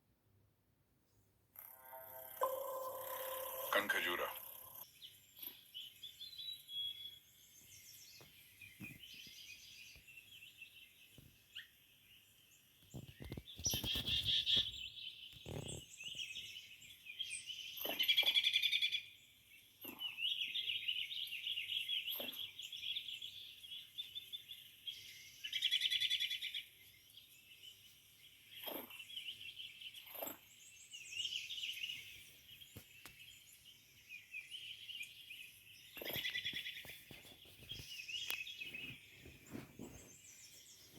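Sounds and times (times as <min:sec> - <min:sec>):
small birds chirping: 0:01.2 - 0:40.9.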